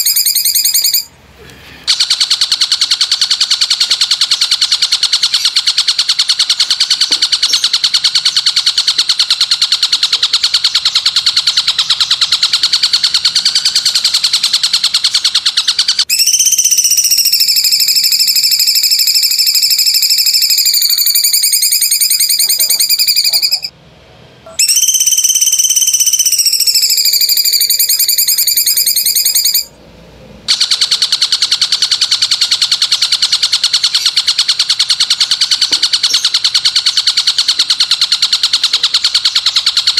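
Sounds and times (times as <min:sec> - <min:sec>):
fast buzzing trill: 0:00.0 - 0:01.2, 0:02.0 - 0:23.7, 0:24.6 - 0:29.8.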